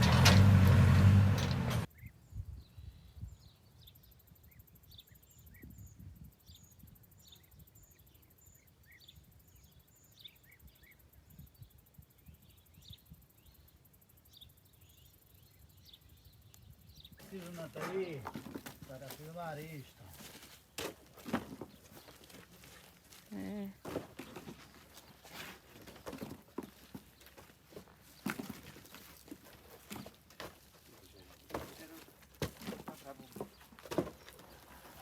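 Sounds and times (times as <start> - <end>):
vehicle engine running: 0.0 - 1.9
small birds chirping: 1.8 - 35.0.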